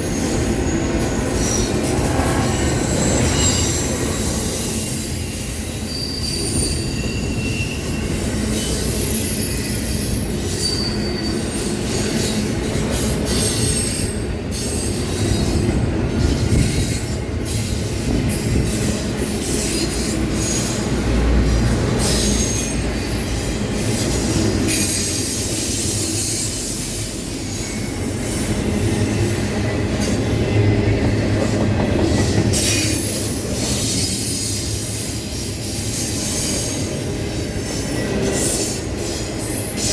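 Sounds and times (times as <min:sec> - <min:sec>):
wheel flange squeals: 0:00.0 - 0:20.8
train wheels rumbling on rail: 0:00.0 - 0:39.9.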